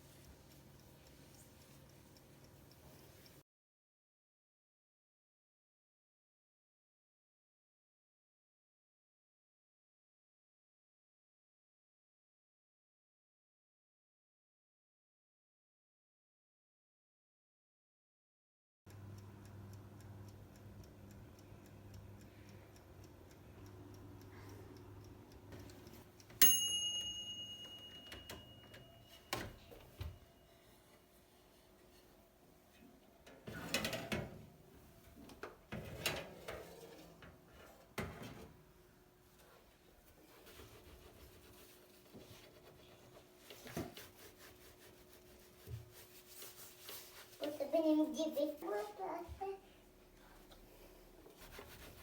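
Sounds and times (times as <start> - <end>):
ringing clink of hard object: 26.4 - 28.8.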